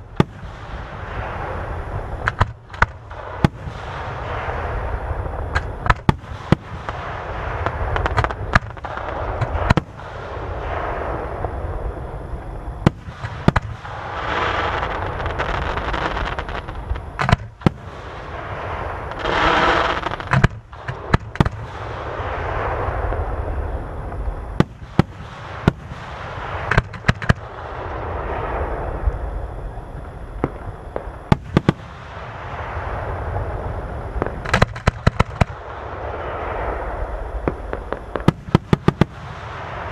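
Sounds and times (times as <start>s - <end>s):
firework hissing: 0.0s - 29.8s
continuous rushing noise: 0.0s - 39.9s
firework bursts and bangs: 0.0s - 39.9s.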